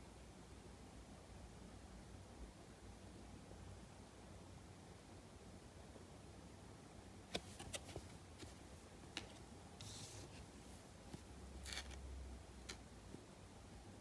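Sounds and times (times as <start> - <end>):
card packs rustling: 7.4 - 12.0.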